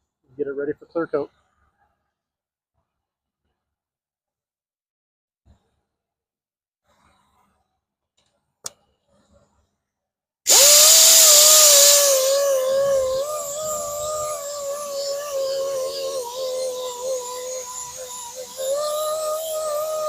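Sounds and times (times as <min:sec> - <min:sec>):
power grinder grinding metal: 0:10.5 - 0:20.0.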